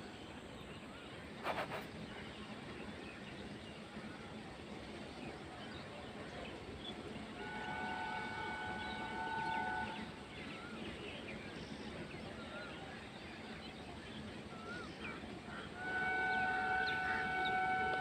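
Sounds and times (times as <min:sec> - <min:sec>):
birds chirping: 0:00.2 - 0:18.0
electric train horn blast: 0:07.3 - 0:10.3, 0:15.6 - 0:18.0.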